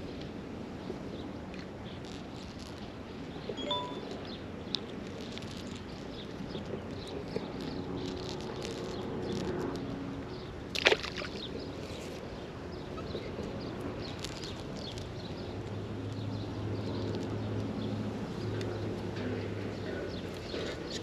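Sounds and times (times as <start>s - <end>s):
splash in creek water: 10.7s - 11.4s.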